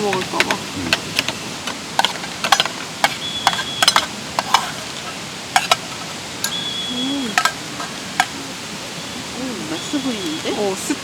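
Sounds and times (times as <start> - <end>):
mountain stream rushing: 0.0 - 11.0
spoon scraping a bowl: 2.0 - 6.6.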